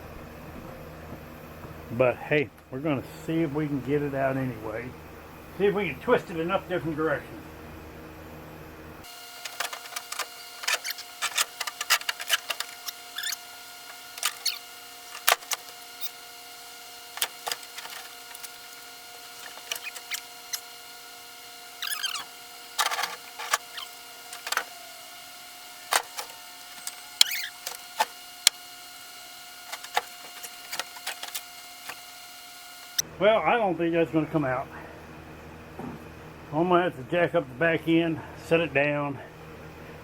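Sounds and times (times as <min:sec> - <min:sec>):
seat squeaking: 0:09.1 - 0:20.9, 0:21.7 - 0:28.6, 0:29.6 - 0:32.1.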